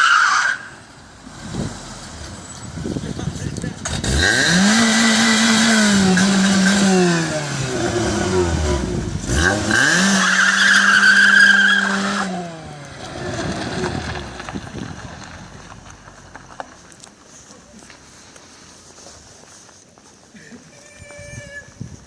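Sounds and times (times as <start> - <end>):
car engine revving: 1.0 - 16.6.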